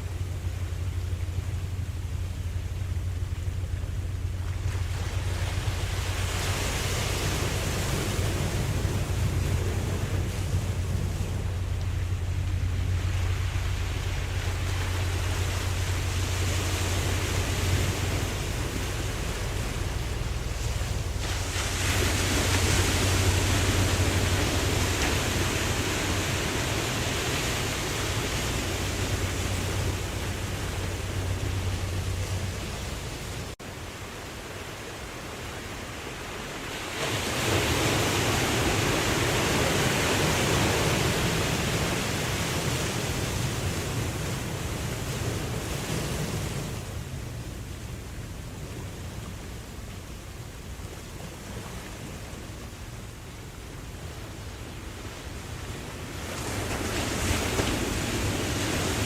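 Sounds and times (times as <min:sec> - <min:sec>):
steady low rumble: 0:00.0 - 0:36.7, 0:37.5 - 0:59.0
ocean wave washing: 0:00.0 - 0:59.0.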